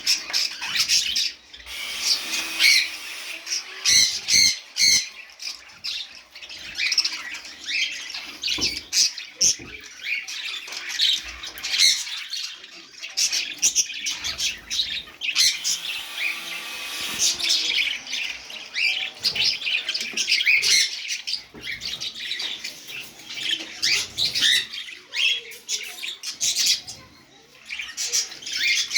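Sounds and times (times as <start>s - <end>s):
budgerigars chattering: 0.0s - 27.0s.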